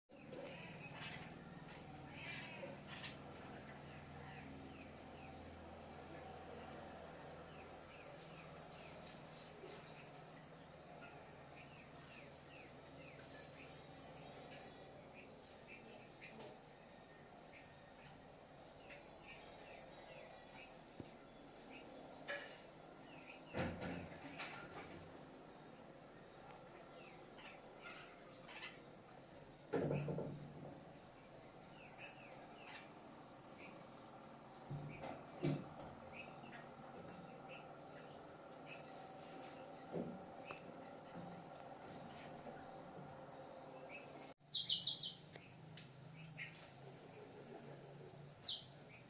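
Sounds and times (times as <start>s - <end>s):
soft bird chirps: 0.1s - 10.4s, 11.0s - 25.4s, 26.4s - 30.3s, 31.2s - 42.6s, 43.4s - 45.6s, 46.2s - 46.8s, 48.0s - 49.0s.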